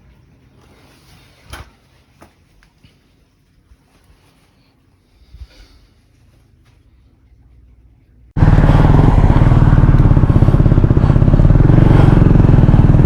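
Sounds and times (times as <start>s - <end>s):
motorcycle engine idling: 8.4s - 13.0s.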